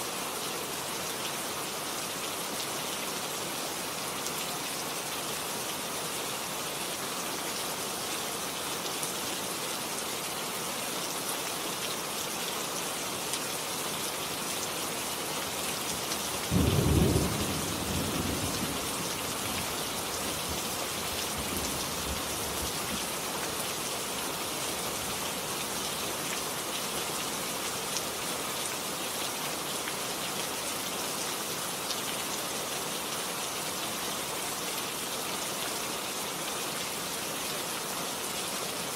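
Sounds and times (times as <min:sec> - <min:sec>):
steady rain pattering: 0:00.0 - 0:38.9
low roll of thunder: 0:16.5 - 0:19.1.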